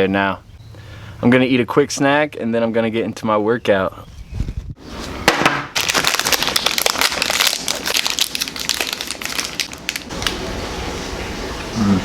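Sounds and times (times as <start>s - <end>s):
plastic wrapper crinkling: 5.7s - 10.4s.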